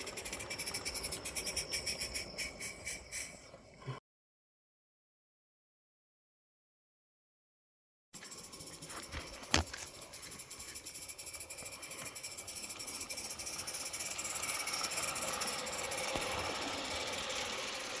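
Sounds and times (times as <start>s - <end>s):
model steam engine chuffing: 0.0s - 3.9s, 8.2s - 18.0s.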